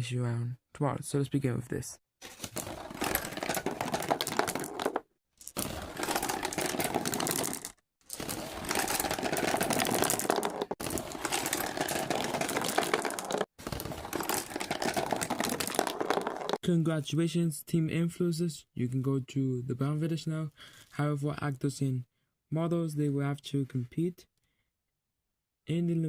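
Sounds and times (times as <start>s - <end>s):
dense crackling and clattering: 2.2s - 16.6s.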